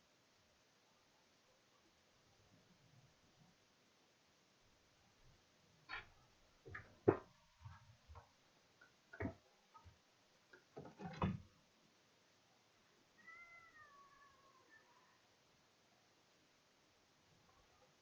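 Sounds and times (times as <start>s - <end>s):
sharp knocks and clatters: 5.9s - 8.3s, 9.1s - 11.5s
meow-like cry: 13.2s - 15.2s.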